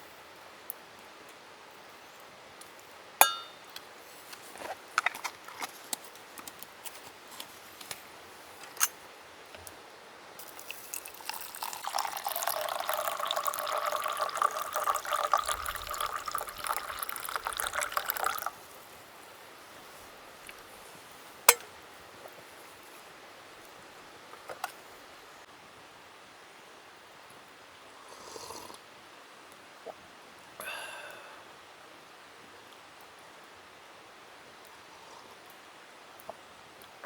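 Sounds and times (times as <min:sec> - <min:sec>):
ringing glass clink: 0:03.2 - 0:03.6
liquid pouring into a vessel: 0:10.4 - 0:18.6.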